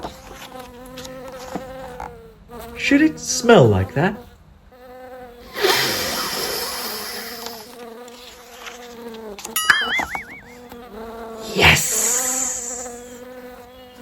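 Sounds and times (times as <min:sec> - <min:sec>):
flies buzzing: 0:04.7 - 0:14.0
hissing rush: 0:05.5 - 0:07.7, 0:11.4 - 0:13.2
warbling wavering tone: 0:09.6 - 0:10.8.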